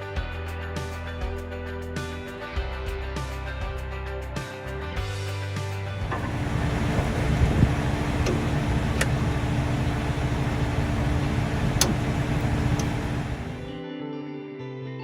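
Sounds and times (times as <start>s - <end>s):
heavy machinery engine rumble: 6.0s - 13.7s
steady hum: 6.0s - 13.8s
sharp clicks: 6.1s - 13.7s.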